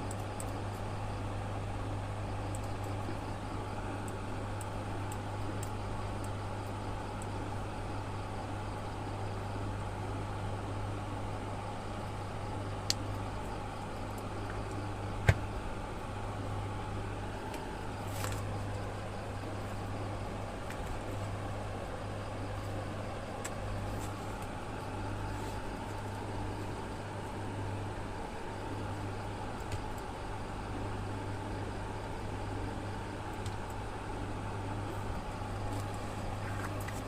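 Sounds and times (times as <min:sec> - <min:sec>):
low electrical hum: 0:00.0 - 0:37.0.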